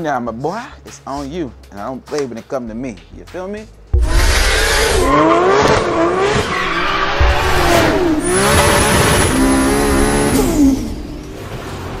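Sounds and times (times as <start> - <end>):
sports car engines revving: 4.0 - 12.0.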